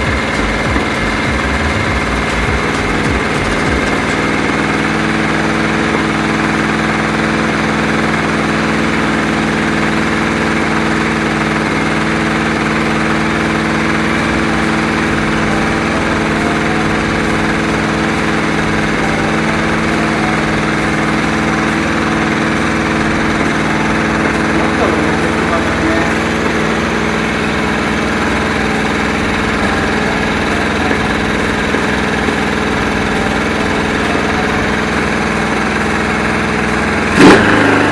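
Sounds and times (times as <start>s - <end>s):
motorcycle engine idling: 0.0s - 7.4s.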